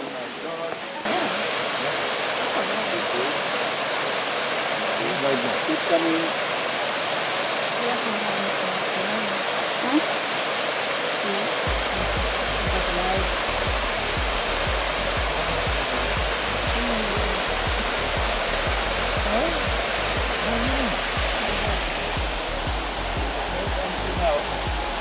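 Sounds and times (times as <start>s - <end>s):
waterfall rushing: 0.0s - 25.0s
short low thumps: 11.7s - 25.0s.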